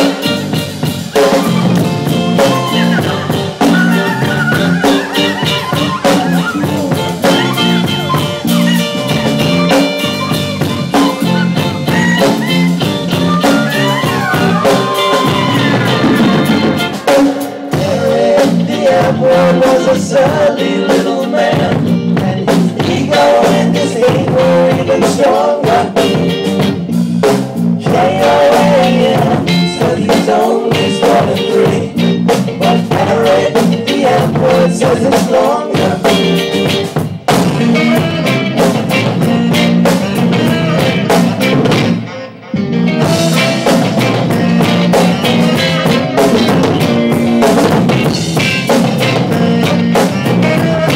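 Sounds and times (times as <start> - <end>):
gliding lead guitar notes: 0.0 - 17.8, 37.6 - 50.9
drum kit beat: 0.0 - 50.9
live band playing: 0.0 - 50.9.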